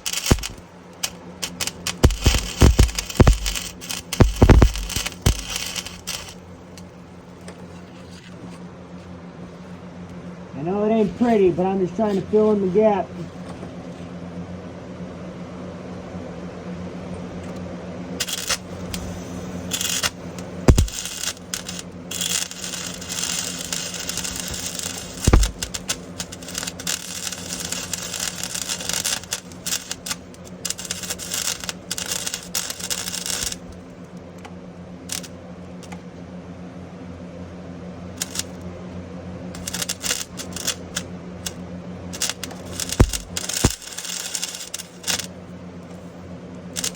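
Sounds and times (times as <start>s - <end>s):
welder arc crackling: 0.0s - 7.6s, 18.2s - 36.0s, 38.2s - 38.7s, 39.6s - 46.1s
steady low hum: 0.0s - 46.9s.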